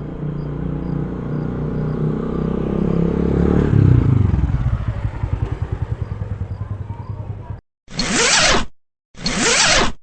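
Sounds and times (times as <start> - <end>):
vehicle engine running: 0.0 - 7.6.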